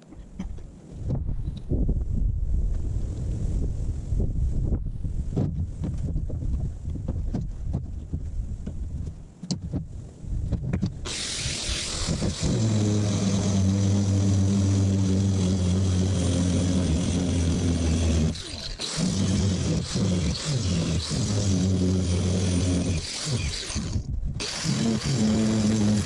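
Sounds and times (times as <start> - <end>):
die grinder cutting metal: 11.0 - 26.0.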